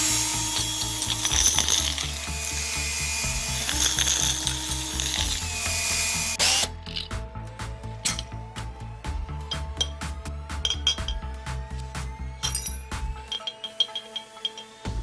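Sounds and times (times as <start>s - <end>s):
cordless drill motor running: 0.0s - 6.8s
background music with steady beat: 0.0s - 15.0s.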